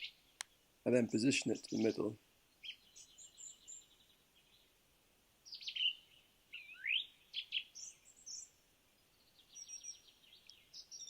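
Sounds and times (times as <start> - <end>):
birds chirping and singing: 0.0 - 4.7, 5.4 - 11.0.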